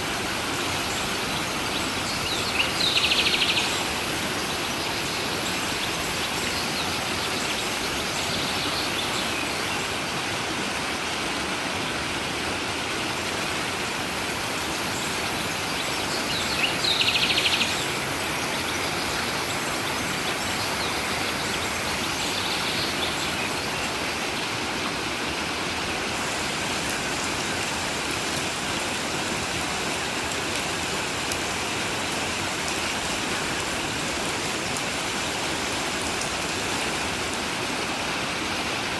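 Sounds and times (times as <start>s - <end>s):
stream water flowing: 0.0s - 38.9s
birds chirping: 0.8s - 9.9s, 14.6s - 24.5s.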